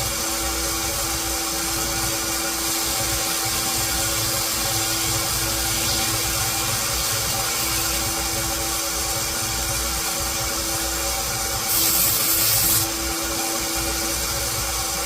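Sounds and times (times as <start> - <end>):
machine motor humming: 0.0 - 15.0.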